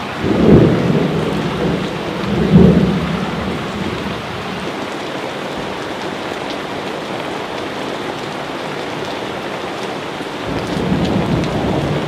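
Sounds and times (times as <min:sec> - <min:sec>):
low rumble of thunder: 0:00.0 - 0:04.8, 0:10.4 - 0:12.0
rain drop ticks: 0:00.0 - 0:12.0
steady rain hissing: 0:00.0 - 0:12.0.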